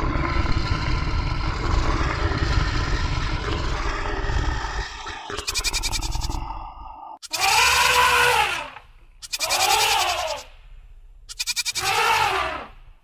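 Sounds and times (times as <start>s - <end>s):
long bleats: 9.2s - 10.5s.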